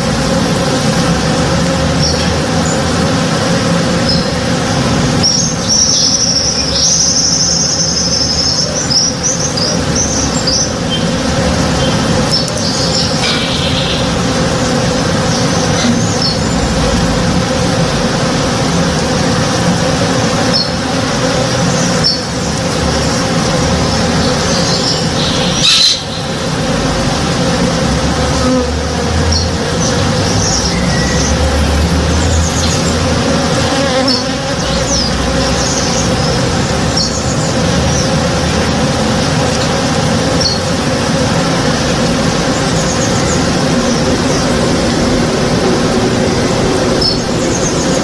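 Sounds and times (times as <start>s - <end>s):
bees buzzing: 0.0s - 48.0s
high chirps: 5.2s - 16.7s, 24.0s - 26.8s.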